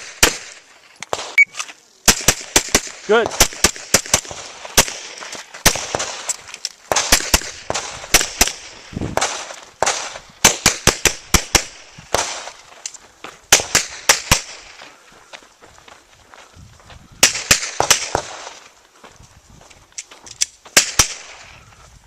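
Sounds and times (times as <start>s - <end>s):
rapid pistol gunshots: 0.0s - 1.4s, 2.0s - 6.3s, 6.9s - 12.6s, 13.5s - 14.8s, 17.2s - 18.6s, 20.8s - 21.4s.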